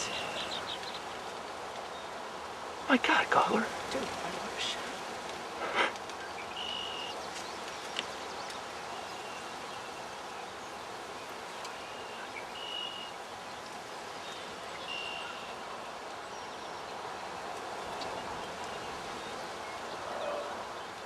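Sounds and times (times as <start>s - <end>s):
outdoor background hiss: 0.0s - 21.0s.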